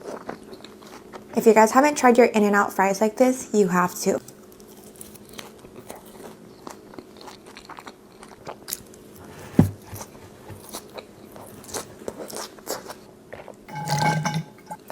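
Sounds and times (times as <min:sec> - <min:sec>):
chewing fries with crisp crunches: 0:00.0 - 0:01.4, 0:04.2 - 0:09.2, 0:10.0 - 0:13.7.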